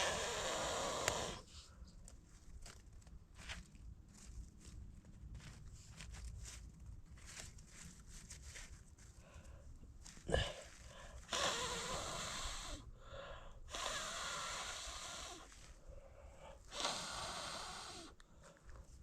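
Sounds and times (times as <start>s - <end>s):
person blowing hard: 11.2s - 12.8s, 13.7s - 15.5s, 16.7s - 18.1s.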